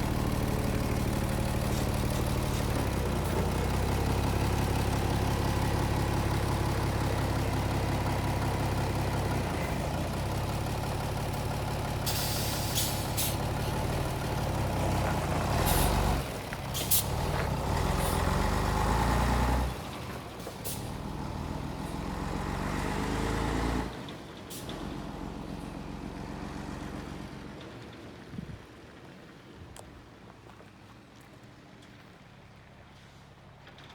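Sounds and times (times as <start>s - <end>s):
diesel truck engine running: 0.0s - 30.0s
air brake hisses: 12.0s - 13.4s, 16.8s - 17.1s.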